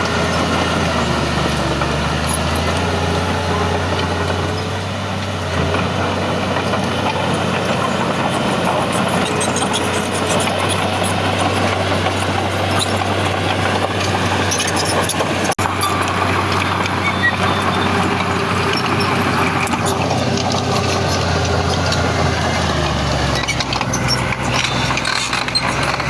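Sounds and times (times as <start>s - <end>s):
heavy diesel engine running: 0.0s - 26.0s.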